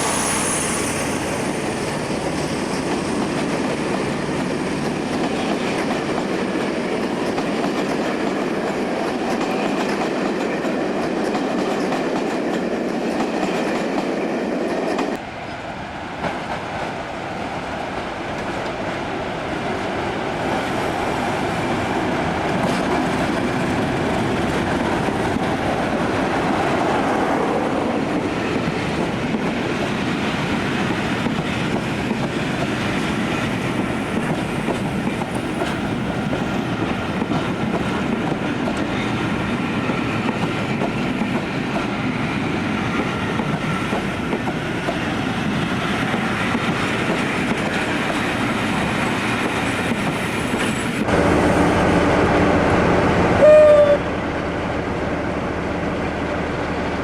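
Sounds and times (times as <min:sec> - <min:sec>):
train running on track: 0:00.0 - 0:57.0
brief high tone: 0:53.4 - 0:54.2.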